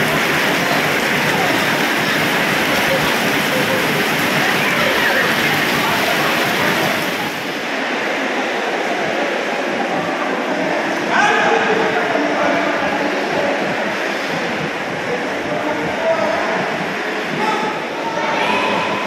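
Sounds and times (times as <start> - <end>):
steady rain falling: 0.0 - 10.9
faint voices murmuring: 0.0 - 19.0.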